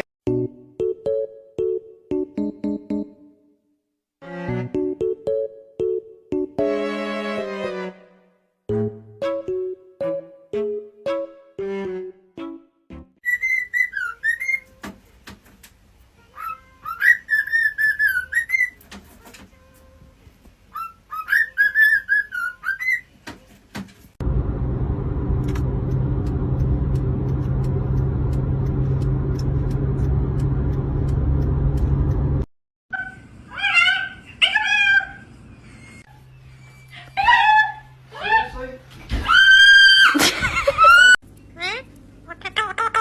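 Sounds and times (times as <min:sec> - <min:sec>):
parrot whistling: 0:13.2 - 0:14.7, 0:16.4 - 0:18.8, 0:20.7 - 0:23.1
steady low hum: 0:24.2 - 0:32.5.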